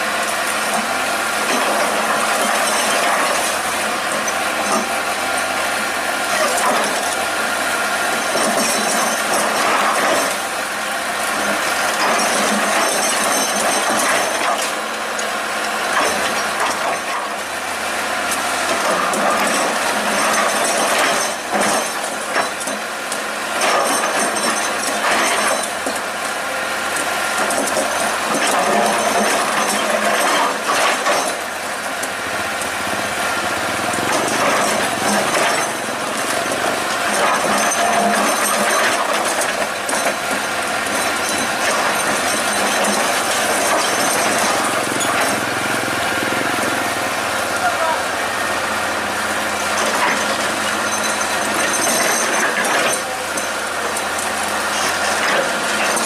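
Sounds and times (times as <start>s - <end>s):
excavator engine and hydraulics: 0.0s - 56.0s
metallic clatter and rattle: 33.8s - 45.5s.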